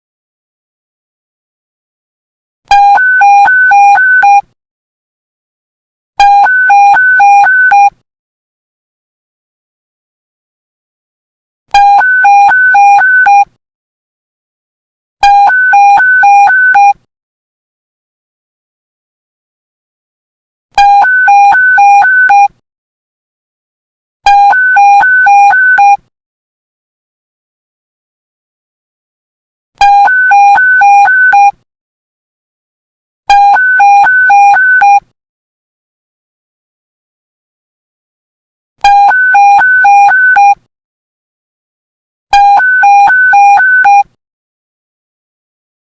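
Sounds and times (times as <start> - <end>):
two-tone electronic alert beep: 11.8 - 13.4, 15.2 - 17.0, 20.8 - 22.5, 24.3 - 26.0, 29.8 - 31.6, 33.3 - 35.0, 38.8 - 40.6, 42.4 - 44.1.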